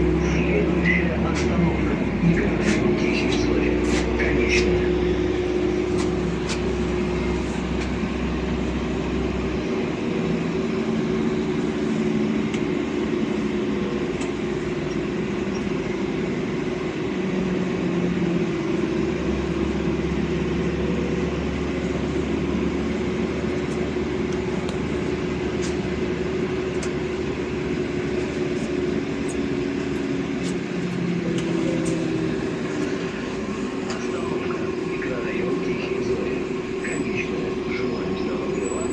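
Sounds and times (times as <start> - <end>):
bus engine hum: 0.0 - 38.9.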